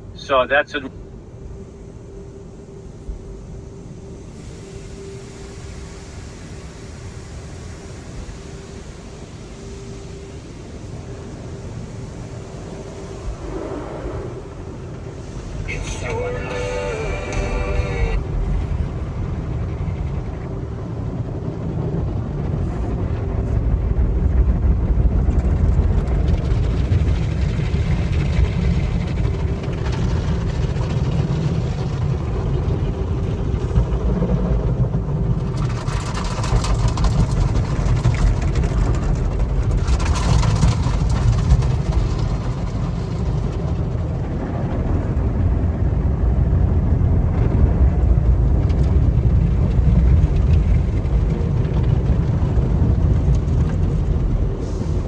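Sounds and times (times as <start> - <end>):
car wash rumbling: 0.0 - 0.9, 2.8 - 55.0
car wash hissing: 14.6 - 20.0.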